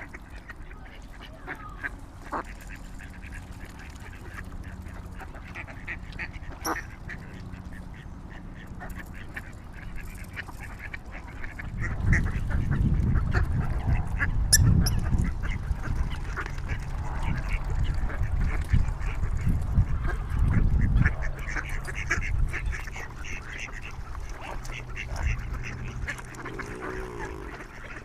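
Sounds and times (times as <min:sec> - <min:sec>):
waterfowl honking and quacking: 0:00.0 - 0:28.0
loud uneven low rumble: 0:22.2 - 0:28.0.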